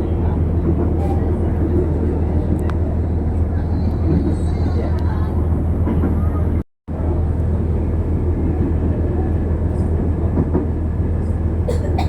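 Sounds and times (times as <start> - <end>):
train rumbling on tracks: 0.0 - 12.0.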